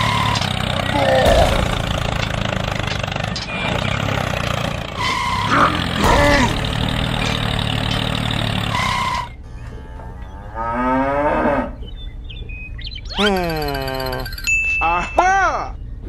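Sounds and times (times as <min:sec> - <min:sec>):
motor hum: 0:00.0 - 0:14.5
falling mooing call: 0:03.6 - 0:11.8.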